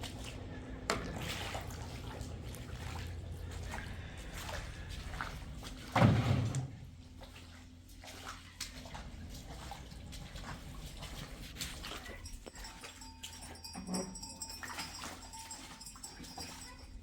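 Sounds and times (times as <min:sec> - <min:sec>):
water sloshing and splashing: 0:00.0 - 0:17.0.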